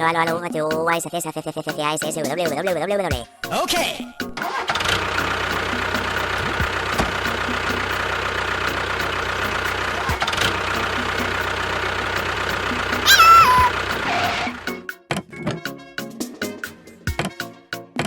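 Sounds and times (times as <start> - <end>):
vehicle engine running: 4.8 - 13.1, 13.7 - 14.7
regular light engine knock: 5.0 - 13.0.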